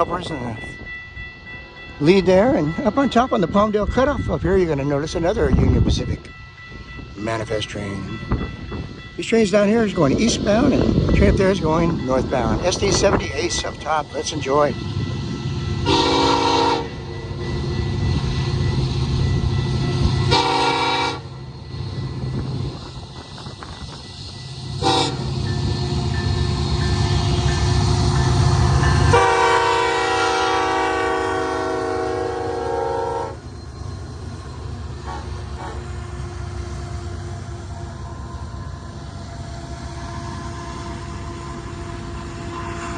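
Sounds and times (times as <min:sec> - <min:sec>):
locomotive horn blasts: 0:15.8 - 0:17.0, 0:20.3 - 0:21.3, 0:24.8 - 0:25.3, 0:29.1 - 0:33.4.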